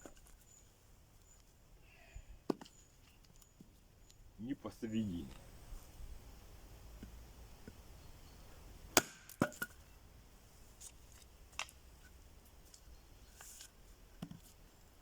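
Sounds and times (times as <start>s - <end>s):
axe chopping log: 8.9s - 9.7s.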